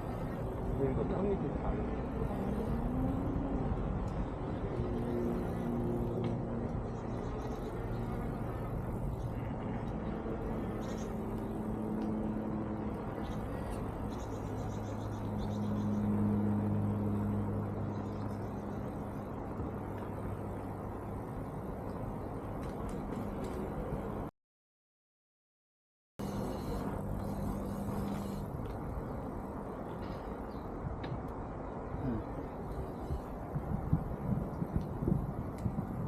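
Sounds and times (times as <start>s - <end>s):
electric bike motor hum: 0.0s - 24.2s, 26.2s - 30.3s, 32.0s - 36.0s
road noise: 0.0s - 24.3s, 26.2s - 36.0s
wind noise: 26.2s - 36.0s.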